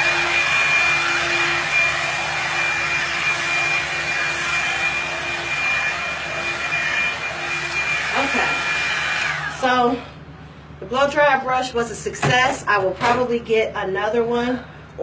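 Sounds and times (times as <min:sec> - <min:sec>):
blow dryer brush running: 0:00.0 - 0:10.2.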